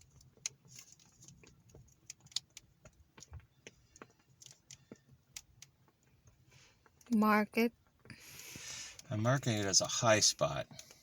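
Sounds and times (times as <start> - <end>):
light clicks and taps: 0.0 - 7.2.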